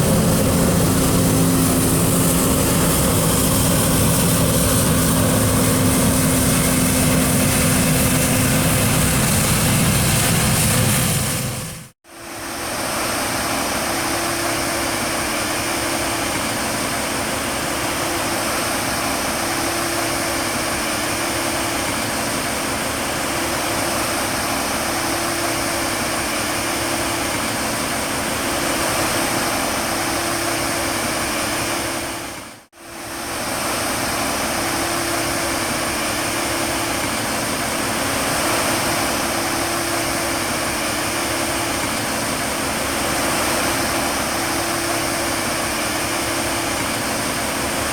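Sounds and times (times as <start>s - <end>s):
machine running with whine: 0.0s - 11.9s.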